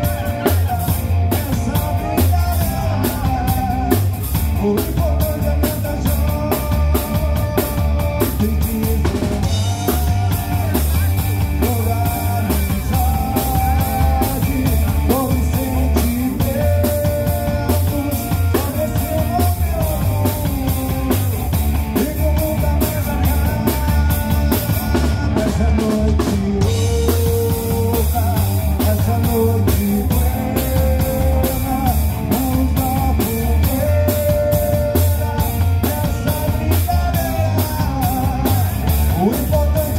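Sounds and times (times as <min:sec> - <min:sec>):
bass guitar: 0:00.0 - 0:39.9
drum kit beat: 0:00.0 - 0:39.9
guitar lead with bends: 0:07.1 - 0:25.4.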